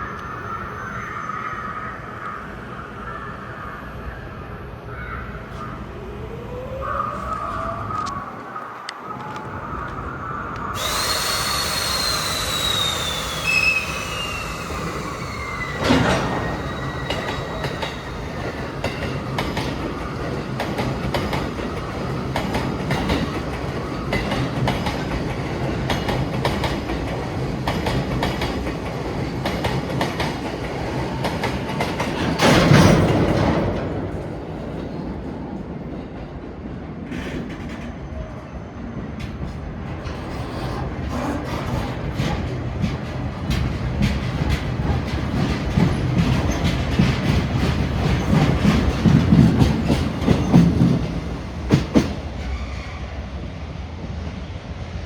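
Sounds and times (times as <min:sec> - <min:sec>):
train wheels squealing: 0:00.0 - 0:03.0, 0:10.3 - 0:26.9, 0:37.1 - 0:39.1, 0:43.6 - 0:53.5
rumble and clatter of wheels on rails: 0:00.0 - 0:55.0.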